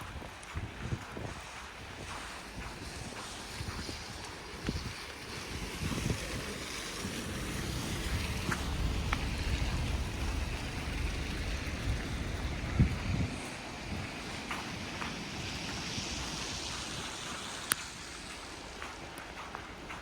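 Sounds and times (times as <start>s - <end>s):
wind rushing: 0.0s - 18.8s
wind on microphone: 0.0s - 20.0s
low rumble: 6.9s - 15.3s.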